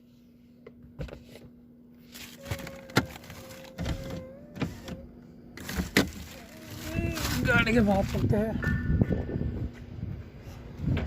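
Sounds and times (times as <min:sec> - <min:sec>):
rustling: 0:05.6 - 0:08.4.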